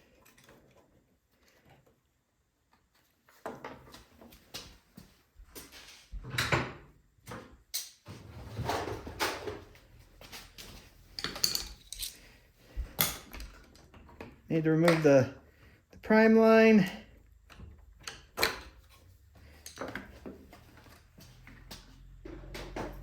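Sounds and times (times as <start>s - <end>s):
tools and parts clicking and scraping: 0.0s - 2.0s, 7.7s - 15.2s, 16.8s - 23.0s.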